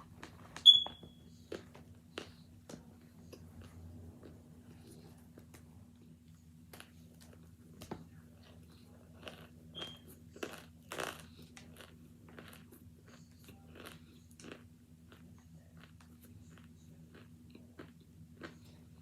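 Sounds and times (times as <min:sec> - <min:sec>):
low steady hum: 0:00.0 - 0:19.0
crunchy chewing: 0:01.5 - 0:06.1, 0:06.7 - 0:19.0.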